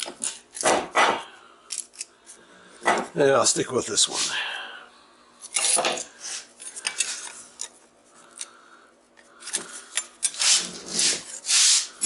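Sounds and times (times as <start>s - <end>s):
metal tool scraping steel: 9.5s - 12.0s.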